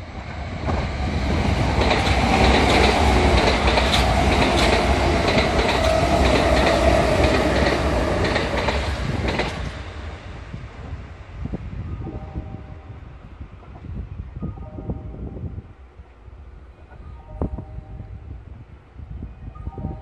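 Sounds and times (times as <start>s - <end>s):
electric train passing: 0.0s - 13.9s
wheels clacking over rail joints: 0.6s - 9.8s.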